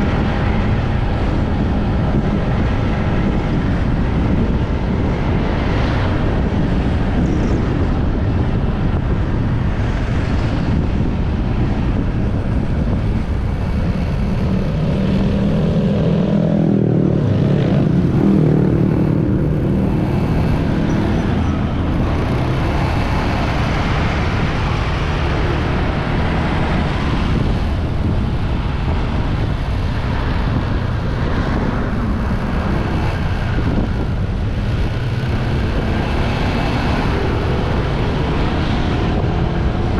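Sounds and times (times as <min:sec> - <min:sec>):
road noise: 0:00.0 - 0:39.9
wind rushing over microphone: 0:00.0 - 0:39.9.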